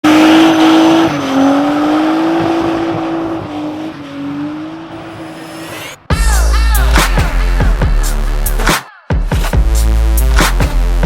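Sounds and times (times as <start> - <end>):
car engine at high revs: 0.0 - 6.1
road and tyre noise: 0.0 - 6.1.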